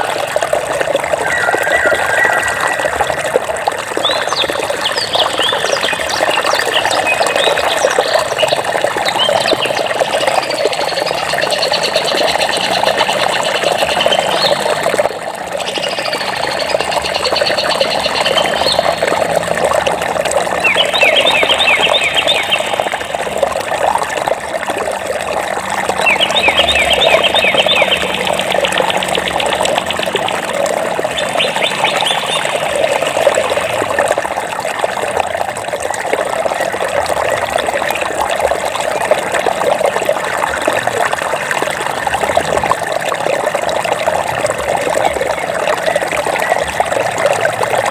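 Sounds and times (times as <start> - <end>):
stream water running: 0.0 - 47.9
birds singing: 1.2 - 15.0, 15.6 - 19.4, 20.5 - 23.4, 25.9 - 34.0.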